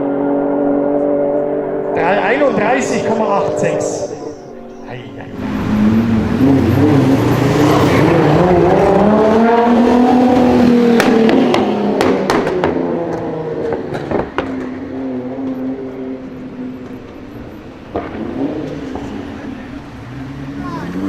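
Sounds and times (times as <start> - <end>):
car engine accelerating hard: 0.0 - 21.0
exhaust pops and cracks: 11.0 - 14.8.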